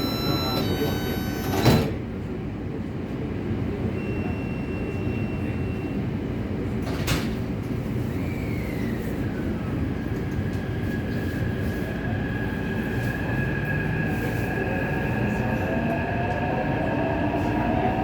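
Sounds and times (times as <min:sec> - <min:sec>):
traction drive whine: 0:00.0 - 0:02.0.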